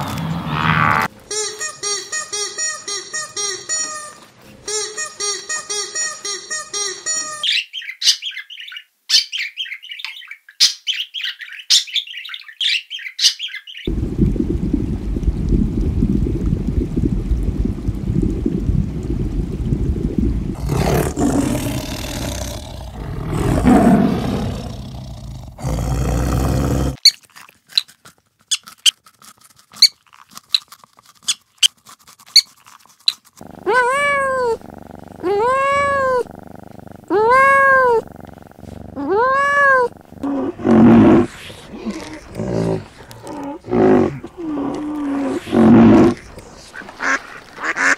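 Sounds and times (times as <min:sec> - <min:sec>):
long low rough animal sound: 0:20.5 - 0:27.0, 0:33.4 - 0:47.0
kitten mewing: 0:33.4 - 0:44.3.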